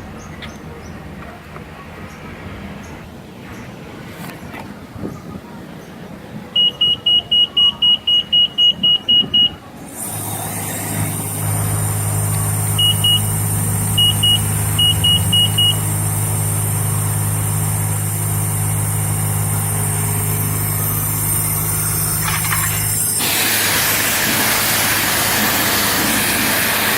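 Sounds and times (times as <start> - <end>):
pump motor humming and hissing: 9.8 - 26.9
high electronic beeps: 12.8 - 13.3, 14.0 - 15.8.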